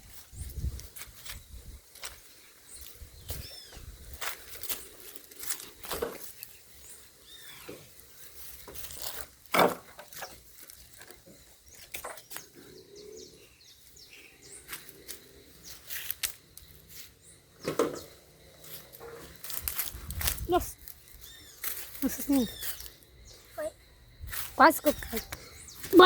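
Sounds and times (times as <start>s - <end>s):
rustling in branches and dry brush: 0.0s - 9.5s, 13.8s - 17.2s, 18.6s - 26.0s.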